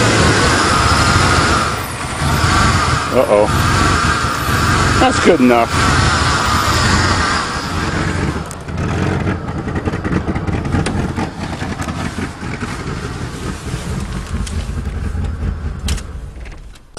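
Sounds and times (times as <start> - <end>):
car engine idling: 0.0 - 16.9.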